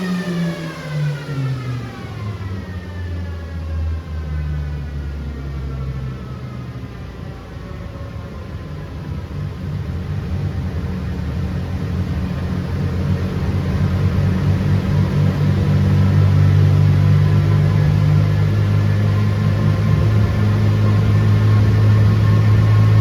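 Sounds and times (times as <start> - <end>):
car engine running: 9.5 - 23.0.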